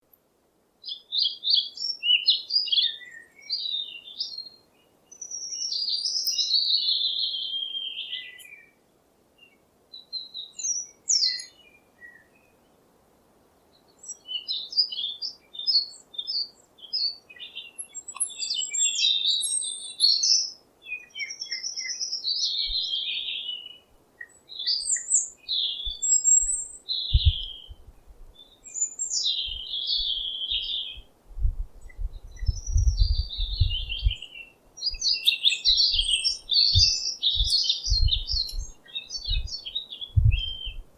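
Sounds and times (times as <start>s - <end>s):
songbirds singing: 0.0s - 12.9s, 13.6s - 40.9s
low bumps: 31.3s - 34.2s, 37.9s - 38.7s, 40.2s - 40.9s.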